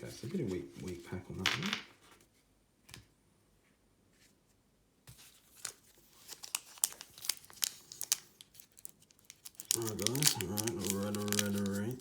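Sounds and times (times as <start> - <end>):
foil wrapper crinkling: 5.4 - 12.0.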